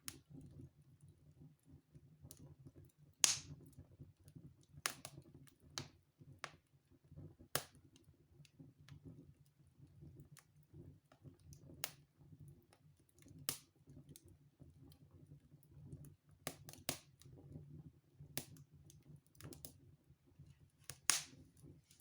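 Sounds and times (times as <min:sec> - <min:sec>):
sharp fire pops: 0:03.2 - 0:03.6, 0:20.9 - 0:21.4
wood fire crackling: 0:03.2 - 0:03.7, 0:20.4 - 0:22.0.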